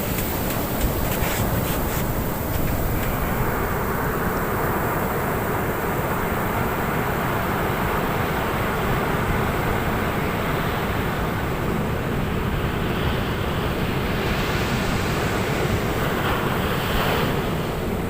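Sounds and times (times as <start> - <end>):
hiss of washing water: 0.0 - 4.3
low rumble of waves: 0.0 - 18.0.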